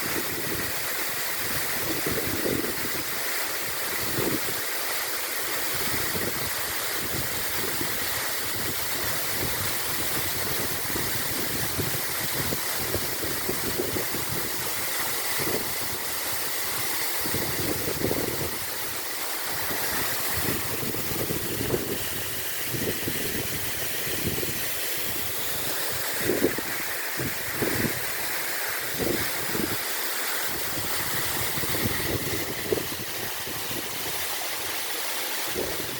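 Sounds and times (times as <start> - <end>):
waterfall rushing: 0.0 - 35.9
wind buffeting microphone: 17.2 - 18.8, 19.6 - 25.3, 26.1 - 28.1, 28.9 - 29.8, 30.5 - 34.2.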